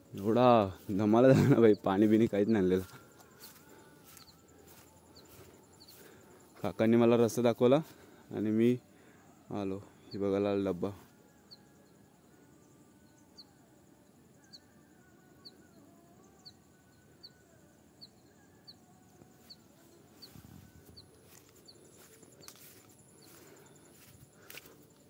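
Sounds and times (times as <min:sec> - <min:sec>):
bird chirping: 0:00.0 - 0:07.0
distant bird calls: 0:00.0 - 0:10.3, 0:14.4 - 0:25.0.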